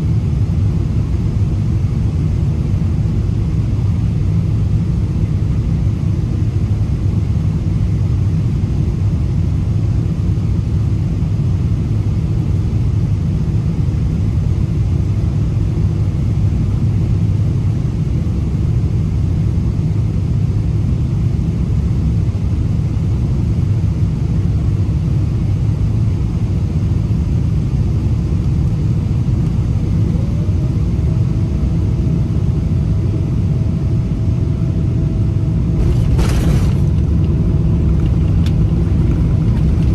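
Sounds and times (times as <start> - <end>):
airplane engines rumbling in cabin: 0.0 - 39.9.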